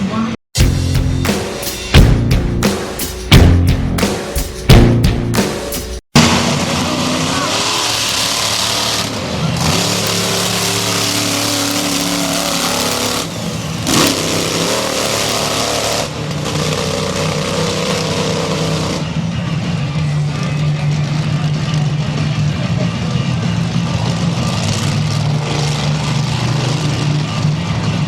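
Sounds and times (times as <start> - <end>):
monster truck engine revving: 6.2 - 28.0.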